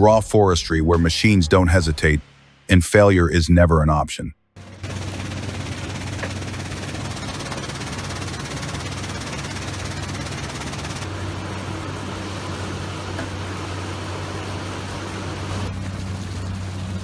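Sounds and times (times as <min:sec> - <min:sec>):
diesel engine drone: 0:04.6 - 0:17.0.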